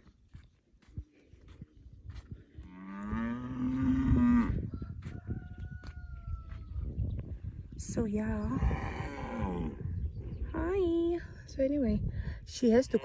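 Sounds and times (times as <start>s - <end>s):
cow mooing: 2.7s - 4.6s.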